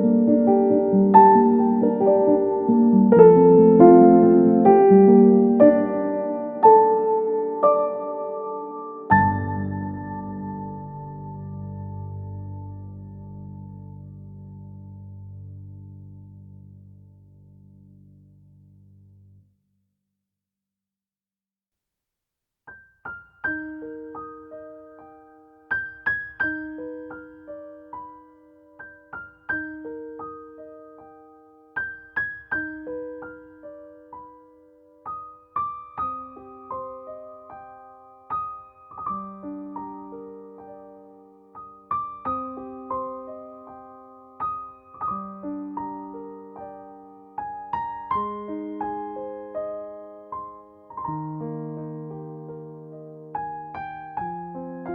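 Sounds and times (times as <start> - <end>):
gentle piano music: 0.0 - 19.4, 22.7 - 54.9.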